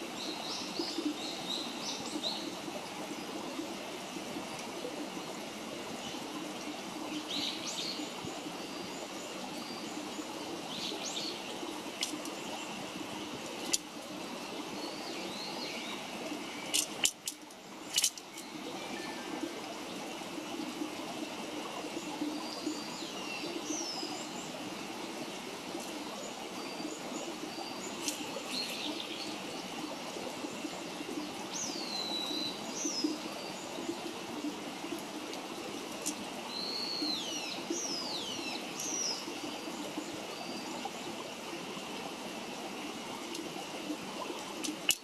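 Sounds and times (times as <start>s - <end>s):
small birds chirping: 14.8s - 18.6s, 25.8s - 29.4s.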